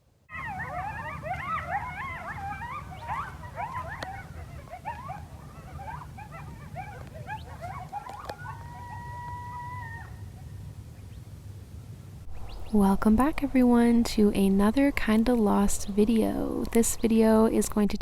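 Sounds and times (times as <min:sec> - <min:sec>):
coyotes yipping and howling: 0:00.3 - 0:10.7, 0:12.3 - 0:17.4
low rumble: 0:12.2 - 0:18.0.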